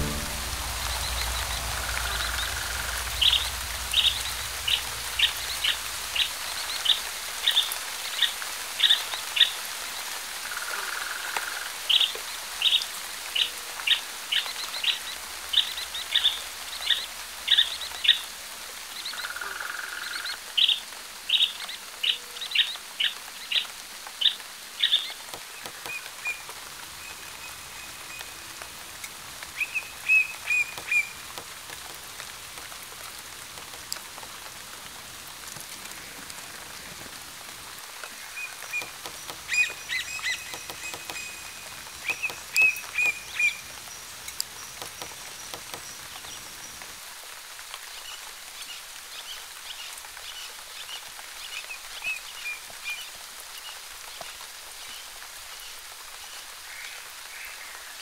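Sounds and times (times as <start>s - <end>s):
light rain hiss: 0.0s - 58.0s
bird chirping: 38.3s - 46.7s.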